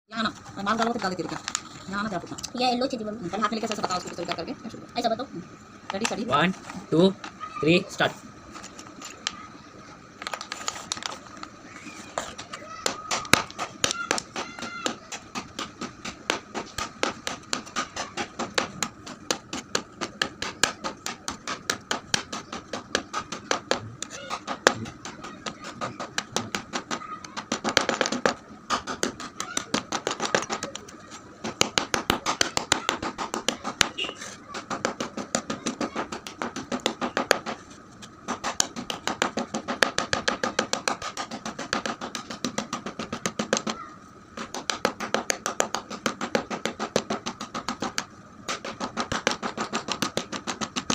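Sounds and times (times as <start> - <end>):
chalk crunching: 10.2 - 18.4.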